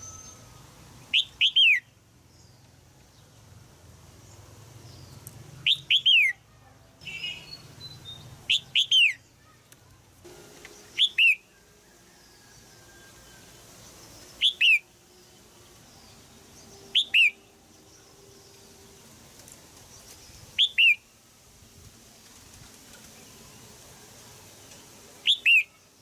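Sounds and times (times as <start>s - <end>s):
bulbul calling: 1.1s - 1.9s, 5.6s - 9.6s, 10.5s - 19.0s, 20.6s - 21.1s, 25.2s - 25.8s
faint bird chirps: 4.9s - 10.0s, 10.7s - 19.2s, 25.2s - 26.0s.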